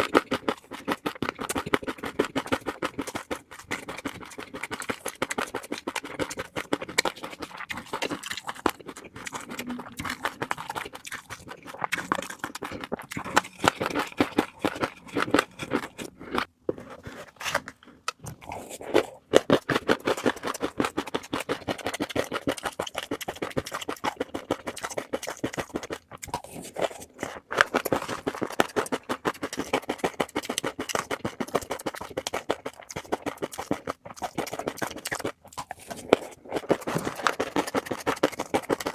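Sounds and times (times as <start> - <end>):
fish roe clicking and crackling: 0.0 - 16.5, 18.0 - 38.9.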